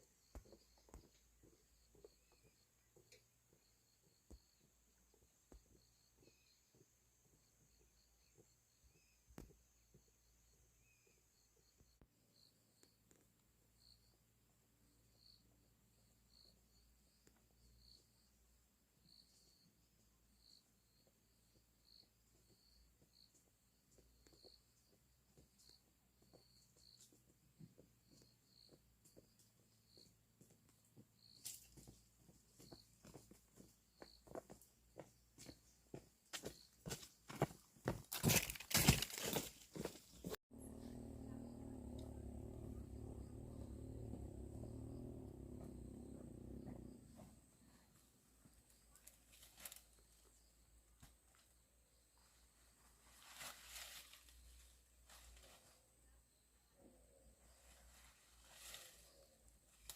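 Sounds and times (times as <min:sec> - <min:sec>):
faint high-pitched chirps: 0:00.0 - 0:14.2.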